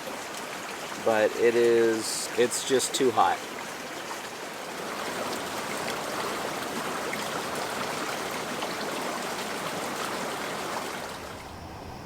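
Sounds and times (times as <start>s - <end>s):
creek running over rocks: 0.0s - 11.6s.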